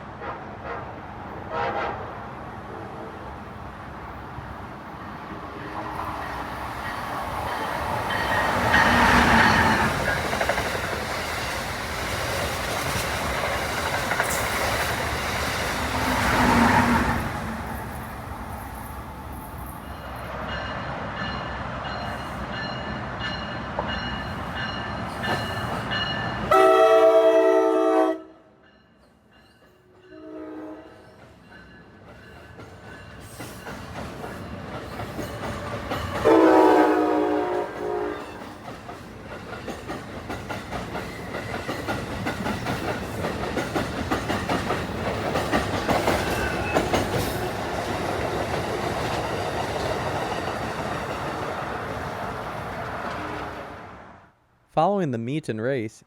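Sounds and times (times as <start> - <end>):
multi-tone train horn blasts: 0.2 - 3.3, 26.5 - 28.6, 30.1 - 31.1, 36.2 - 38.5
train wheels clattering over rail joints: 38.4 - 51.4.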